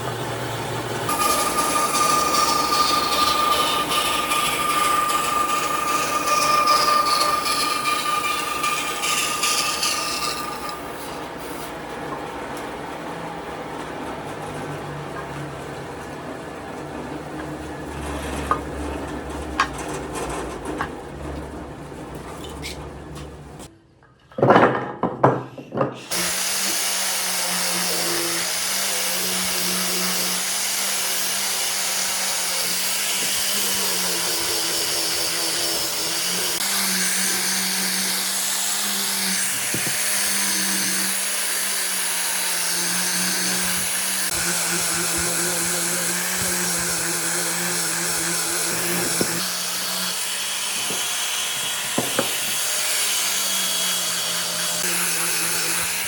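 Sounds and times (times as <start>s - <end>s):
electric power tool whirring: 0.9s - 11.4s, 26.0s - 56.0s.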